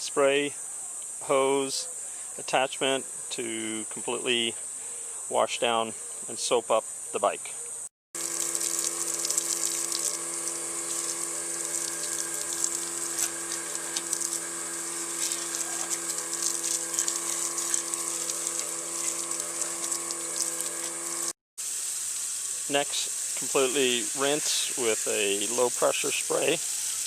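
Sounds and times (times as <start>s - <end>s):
machine hum: 8.2s - 21.4s
hose water spraying: 8.2s - 27.0s.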